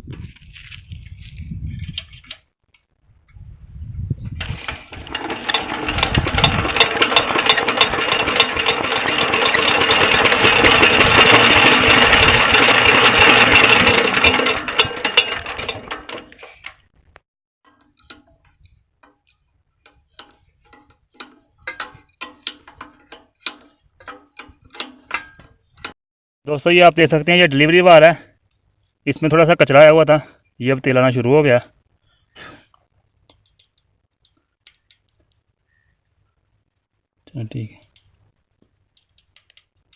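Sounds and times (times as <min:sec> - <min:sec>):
diesel engine turning over: 0:04.4 - 0:16.6
sharp metallic clicks and taps: 0:17.7 - 0:26.0, 0:32.7 - 0:36.1, 0:37.8 - 0:39.9.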